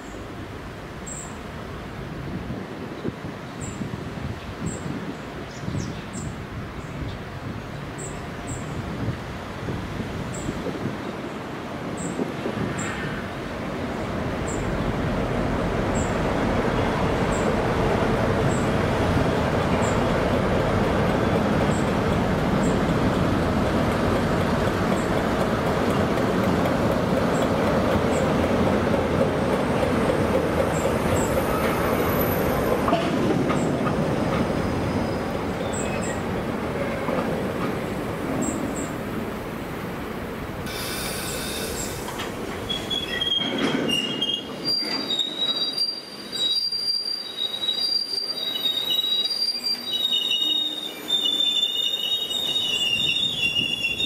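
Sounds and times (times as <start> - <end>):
train wheels rumbling on rail: 1.5 - 54.0
wavering wheel squeal: 42.6 - 54.0.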